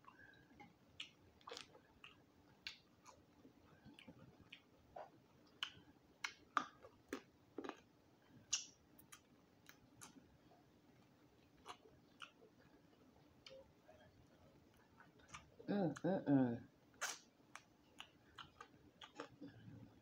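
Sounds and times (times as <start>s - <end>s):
person chewing crunchy food: 0.0s - 7.9s, 17.0s - 19.8s.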